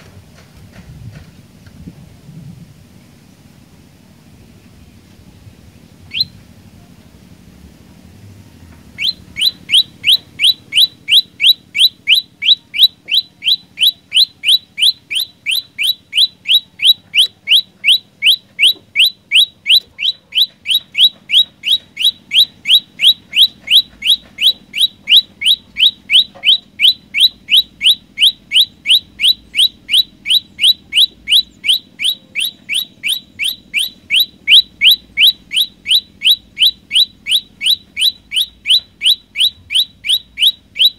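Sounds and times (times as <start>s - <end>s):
songbird upward-sweeping call: 6.1s - 6.4s, 9.0s - 40.9s.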